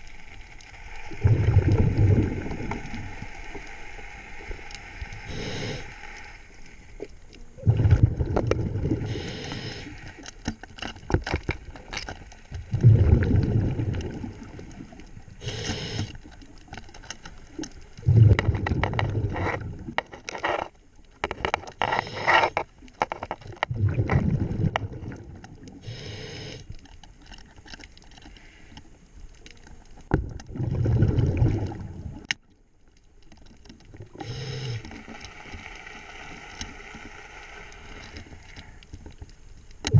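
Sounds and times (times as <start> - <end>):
exhaust bubbles rumbling: 1.1 - 3.1, 7.6 - 9.2, 12.7 - 15.6, 18.0 - 20.0, 23.6 - 25.7, 30.1 - 32.3
regulator inhale hiss: 3.5 - 6.9, 9.0 - 10.3, 15.4 - 16.3, 21.8 - 22.6, 25.8 - 26.8, 28.3 - 28.9, 34.1 - 35.2.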